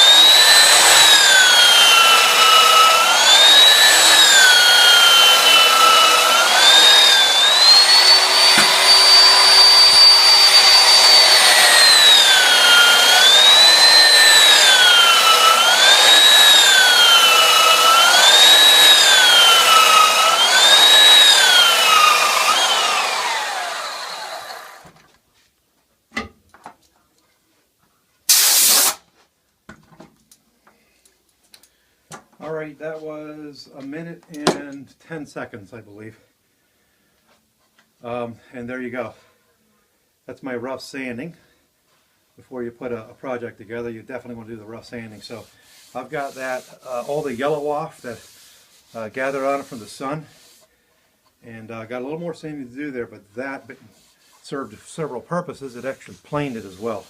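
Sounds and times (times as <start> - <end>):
belt sander whining on a board: 0.0 - 25.0, 45.2 - 50.6
short hiss: 28.3 - 29.1.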